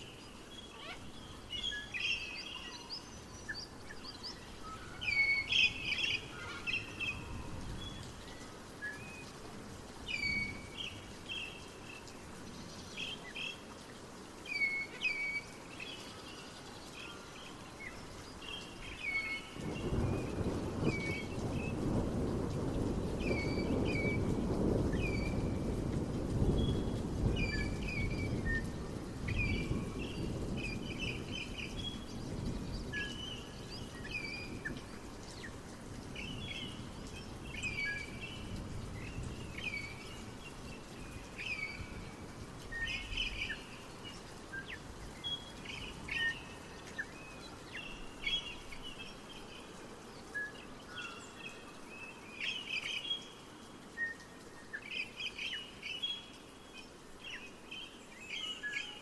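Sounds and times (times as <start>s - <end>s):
small birds singing: 0.0s - 59.0s.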